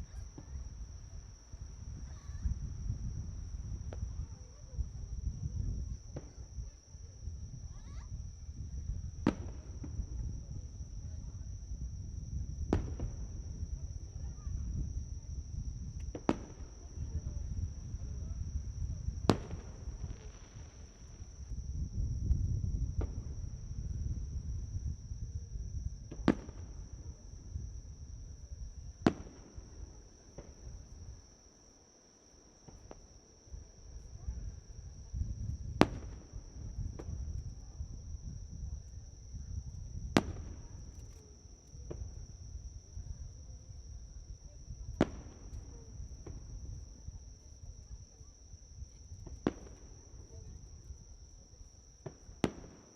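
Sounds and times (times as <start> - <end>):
insects chirring: 0.0 - 52.9
fireworks bangs: 9.2 - 10.0, 12.7 - 13.3, 16.0 - 21.5, 26.1 - 26.8, 29.0 - 29.7, 35.7 - 37.4, 40.1 - 41.2, 44.9 - 46.5, 49.2 - 50.0, 52.0 - 52.9.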